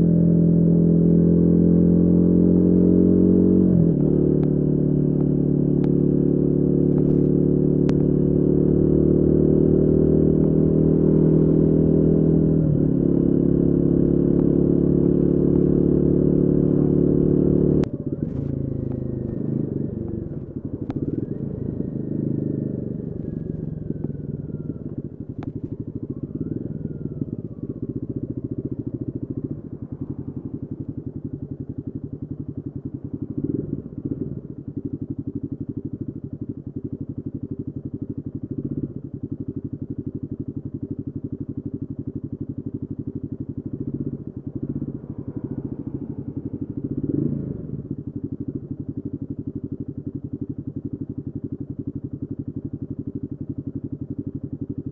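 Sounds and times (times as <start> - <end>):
motorcycle engine running loudly: 0.0 - 54.9.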